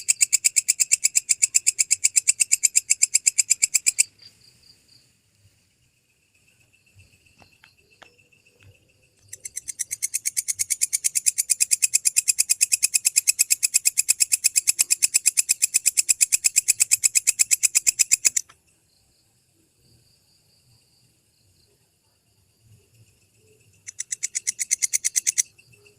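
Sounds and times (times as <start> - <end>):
katydid clicking pulses: 7.4 - 18.5, 23.8 - 25.5.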